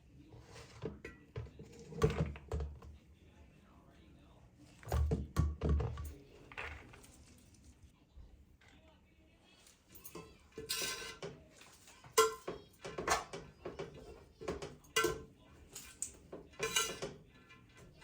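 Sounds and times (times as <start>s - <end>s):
dishes and cutlery clinking: 0.4s - 2.9s, 9.7s - 18.0s.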